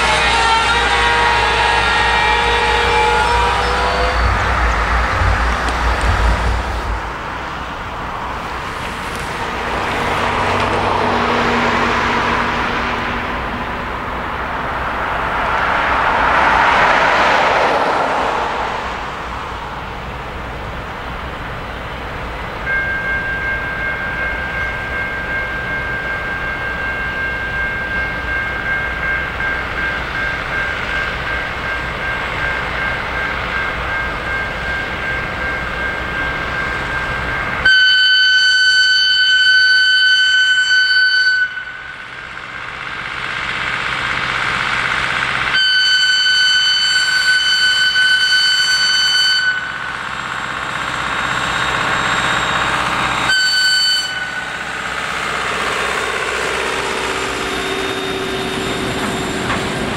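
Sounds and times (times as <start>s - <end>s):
train rolling slowly past: 0.0s - 59.9s
two-tone electronic warning signal: 22.7s - 42.0s, 45.5s - 59.9s.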